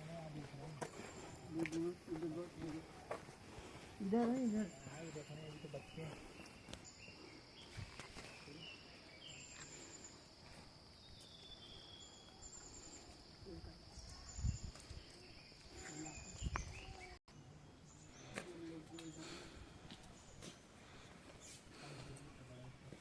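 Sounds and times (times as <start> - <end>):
insect chirps: 0.0 - 17.2.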